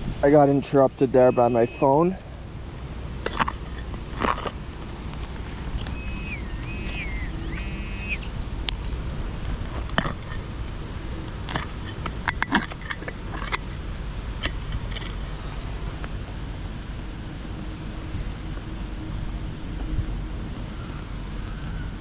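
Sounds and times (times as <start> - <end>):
wind buffeting microphone: 0.0 - 22.0
high pitched stepping tones: 1.1 - 10.5.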